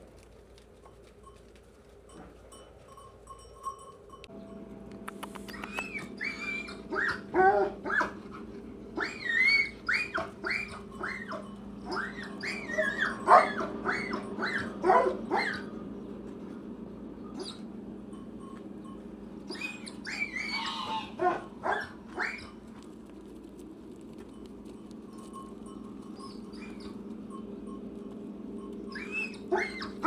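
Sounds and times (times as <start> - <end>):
steady low hum: 0.0 - 30.0
high-pitched animal cries: 5.2 - 8.2, 9.0 - 15.7, 19.5 - 22.6, 26.2 - 27.0, 28.9 - 30.0.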